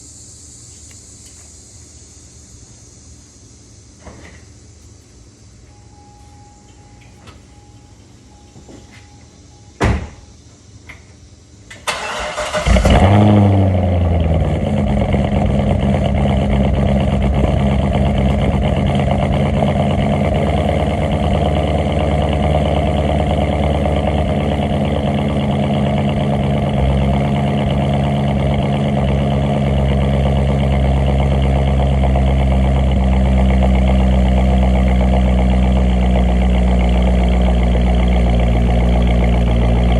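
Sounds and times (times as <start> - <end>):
electronic chime: 5.7 - 9.8
car engine revving and idling: 11.9 - 39.9.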